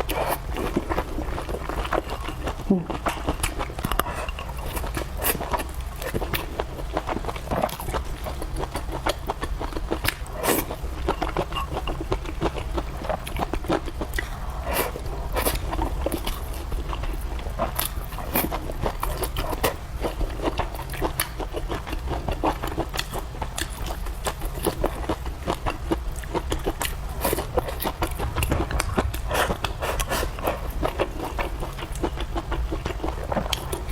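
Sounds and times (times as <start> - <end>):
person chewing food: 0.0 - 33.9
steady low hum: 24.4 - 33.9.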